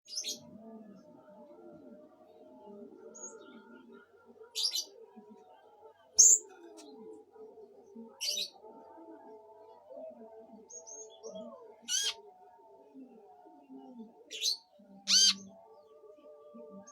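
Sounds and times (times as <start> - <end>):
low wavering bird calls: 11.3 - 12.2, 14.3 - 15.5.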